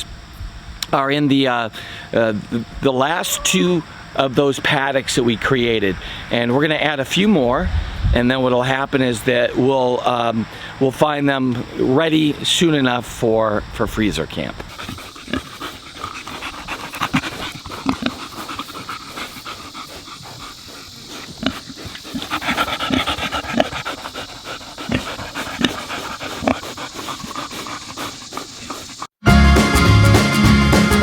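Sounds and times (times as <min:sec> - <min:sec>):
animal panting and snuffling: 0:14.1 - 0:29.2
music: 0:29.2 - 0:31.0.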